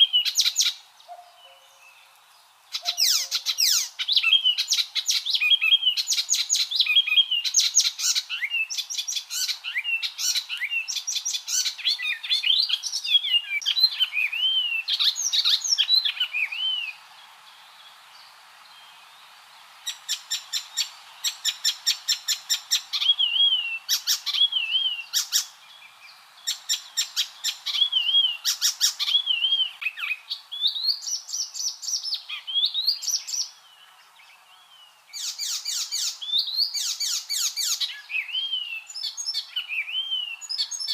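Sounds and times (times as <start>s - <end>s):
warbler singing: 0.0s - 19.3s, 19.9s - 40.9s.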